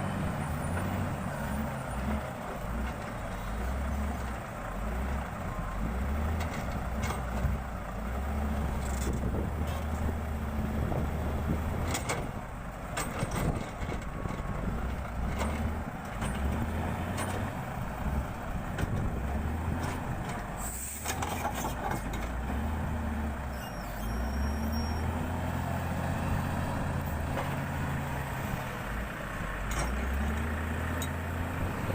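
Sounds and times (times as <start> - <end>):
heavy engine running: 0.0 - 31.9
brief hiss: 20.6 - 21.2.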